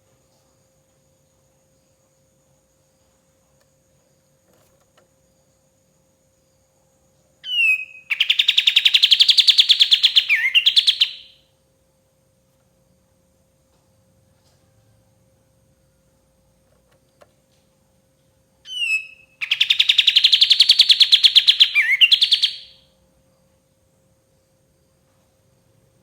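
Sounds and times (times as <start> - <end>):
faint steady hum: 0.0 - 26.0
bird singing trill: 7.4 - 11.4, 18.6 - 22.9.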